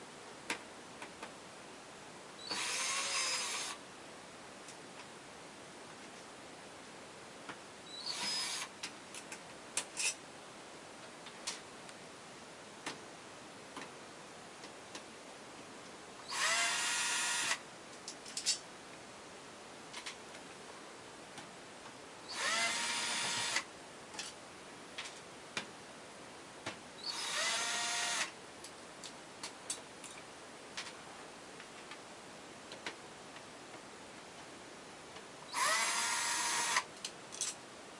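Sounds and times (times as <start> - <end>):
electric drill motor whine: 2.4 - 3.8, 8.0 - 8.7, 16.3 - 17.6, 22.3 - 23.6, 27.0 - 28.3, 35.5 - 36.8.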